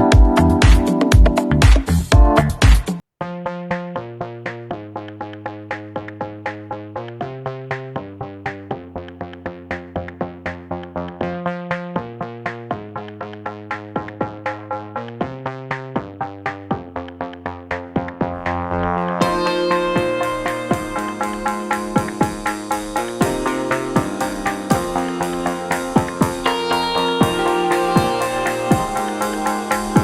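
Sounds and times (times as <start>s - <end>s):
electronic synth music: 0.0s - 2.5s, 10.8s - 30.0s.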